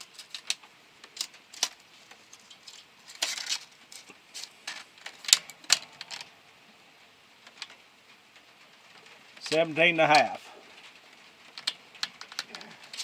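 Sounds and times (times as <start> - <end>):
metal being handled: 0.0 - 6.4, 9.0 - 13.0.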